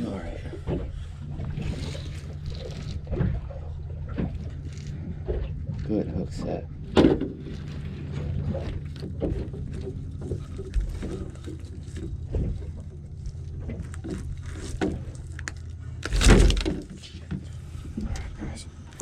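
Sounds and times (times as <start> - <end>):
knocks and clatter on boat: 0.0 - 19.0
low steady hum: 0.0 - 19.0
loud thump: 16.1 - 16.8.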